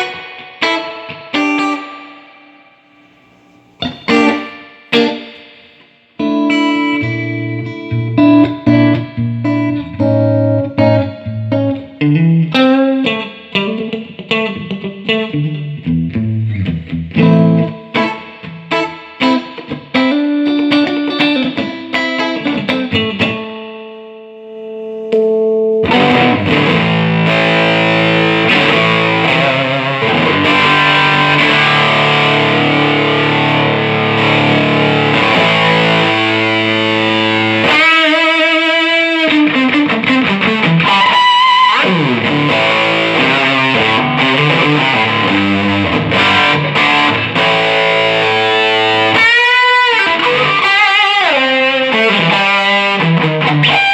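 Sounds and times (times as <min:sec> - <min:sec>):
overdriven electric guitar: 0:00.0 - 0:53.9.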